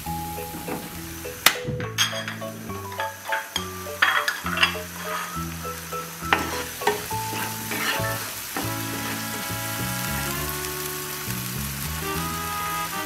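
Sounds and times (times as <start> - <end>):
background music: 0.0 - 13.0
wooden spoon knocking pan: 0.4 - 5.4, 6.3 - 9.4
paste sizzling in oil: 2.1 - 13.0.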